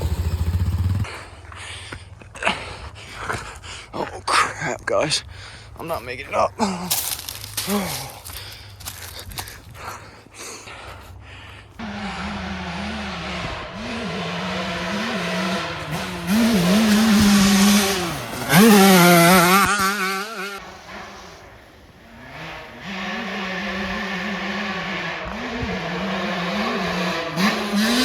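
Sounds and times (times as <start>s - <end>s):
dirt bike engine revving: 0.0s - 1.2s, 11.8s - 28.0s.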